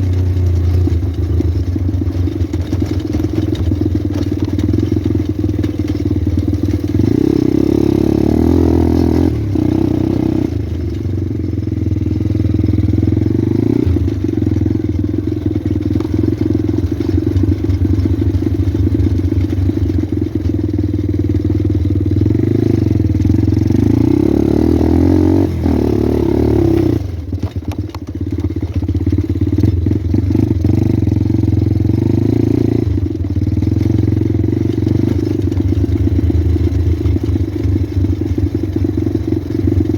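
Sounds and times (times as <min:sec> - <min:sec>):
motorbike engine revving: 0:00.0 - 0:27.4
engine clatter: 0:00.0 - 0:39.9.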